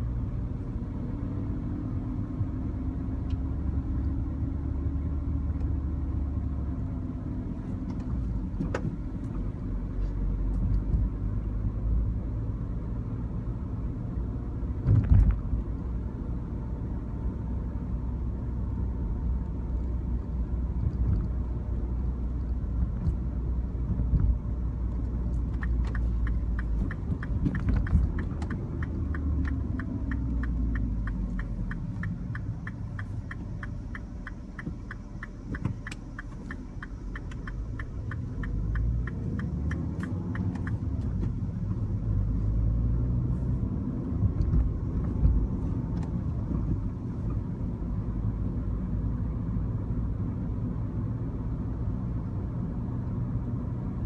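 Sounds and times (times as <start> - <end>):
car engine and road rumble: 0.0 - 54.0
regular ticking: 25.5 - 41.8.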